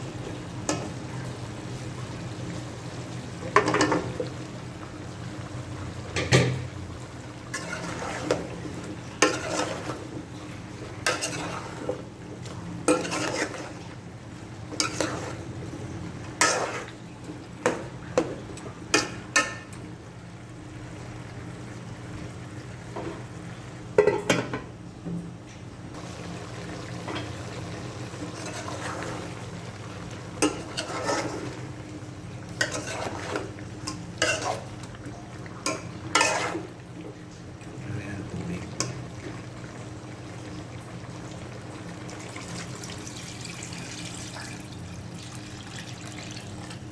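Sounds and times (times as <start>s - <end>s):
utensil scraping cooking pot: 7.5s - 10.1s, 11.0s - 12.1s, 12.9s - 13.9s, 14.7s - 15.5s, 16.4s - 17.0s, 28.3s - 29.4s, 30.4s - 31.7s, 32.5s - 34.9s, 35.6s - 36.8s.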